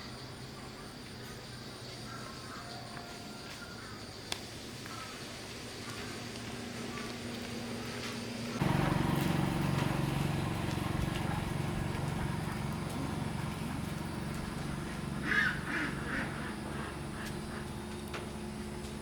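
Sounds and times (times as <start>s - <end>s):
engine running with low hum: 3.8s - 19.0s.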